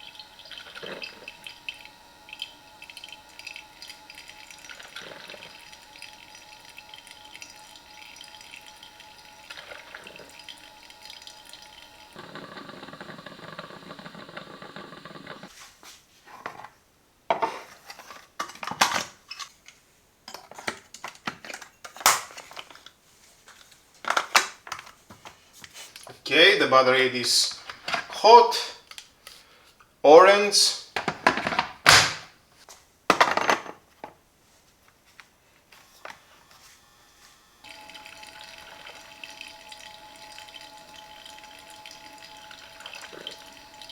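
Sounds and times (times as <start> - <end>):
coffee machine hissing: 0.0 - 15.5, 25.9 - 28.8, 35.8 - 43.9.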